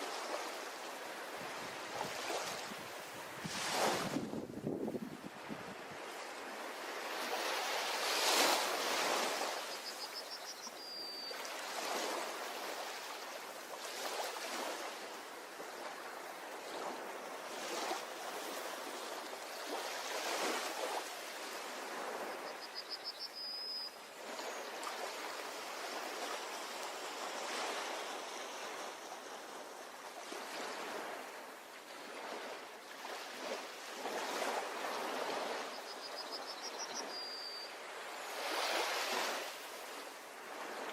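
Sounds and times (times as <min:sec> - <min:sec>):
short high chirping call: 0:35.9 - 0:37.7.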